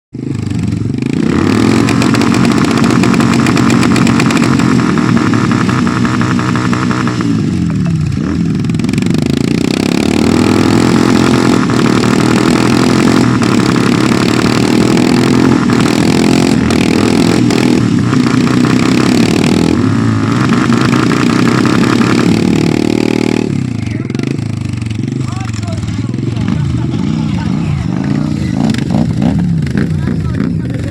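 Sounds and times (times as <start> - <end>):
motorcycle engine revving hard: 0.1 - 30.9.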